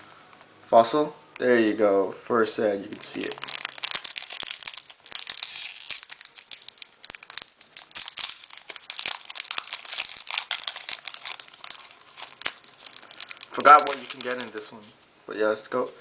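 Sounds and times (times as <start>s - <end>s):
foil wrapper tearing and crinkling: 2.9s - 14.8s.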